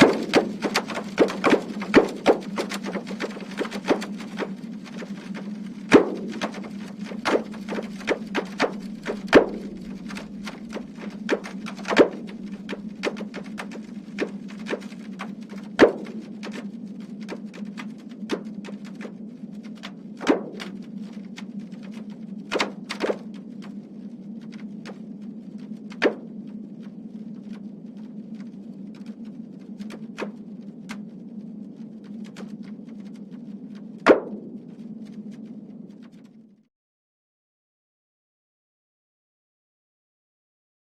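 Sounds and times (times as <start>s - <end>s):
irregular pops and thuds: 0.0s - 23.7s, 33.8s - 35.2s
steady hum: 0.0s - 36.2s.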